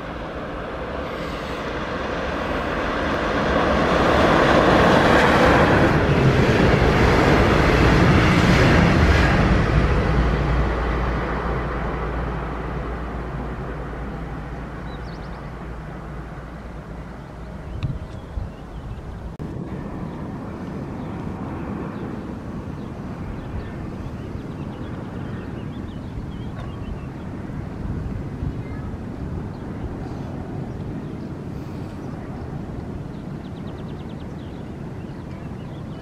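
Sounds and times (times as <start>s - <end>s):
low hum: 0.0s - 28.2s
train passing close by: 0.0s - 36.0s.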